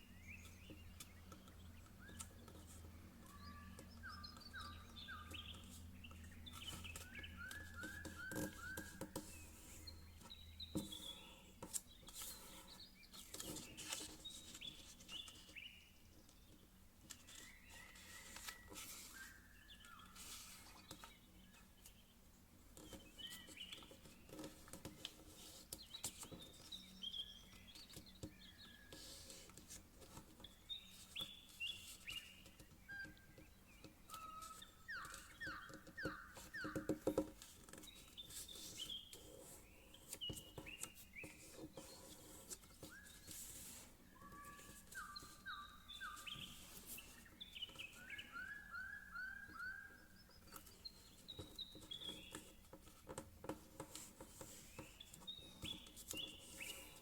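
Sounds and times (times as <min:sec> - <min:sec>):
high chirping squeaks: 0:03.3 - 0:11.2, 0:30.4 - 0:52.6
paper rustling and creasing: 0:10.7 - 0:15.6, 0:17.0 - 0:21.2, 0:36.0 - 0:45.5.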